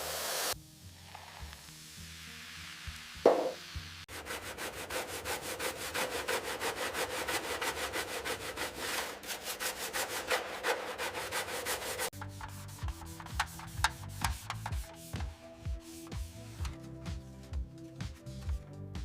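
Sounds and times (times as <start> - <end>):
hand sanding strokes: 4.1 - 18.5.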